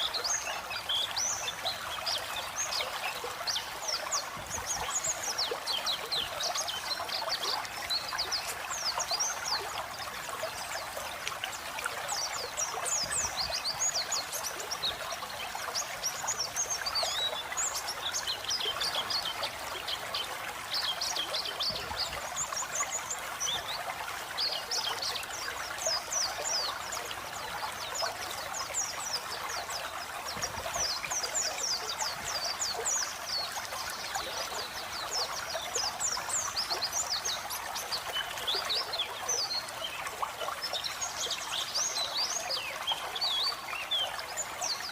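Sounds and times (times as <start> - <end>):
bird twittering song: 0.0 - 44.9
flowing water: 0.0 - 44.9.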